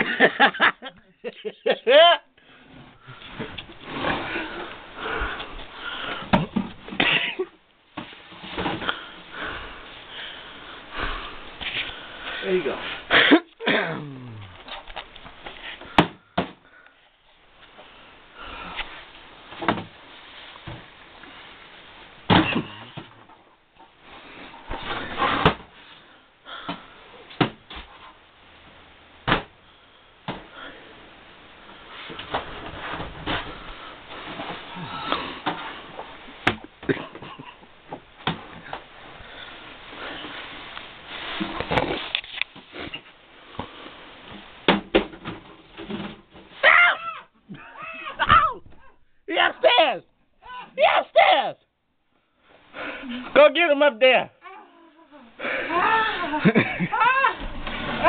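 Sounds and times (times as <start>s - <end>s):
scraping and rustling: 38.5s - 44.6s
person wheezing breaths: 55.1s - 56.4s.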